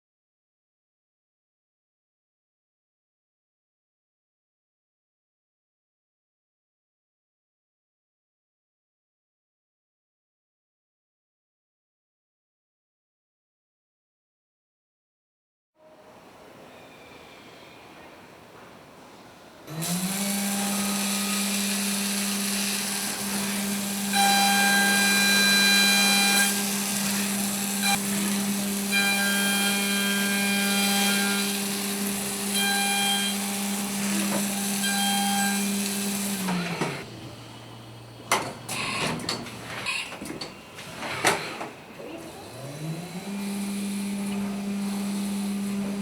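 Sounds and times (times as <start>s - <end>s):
milling machine spindle whine: 19.7s - 39.8s, 42.3s - 46.0s.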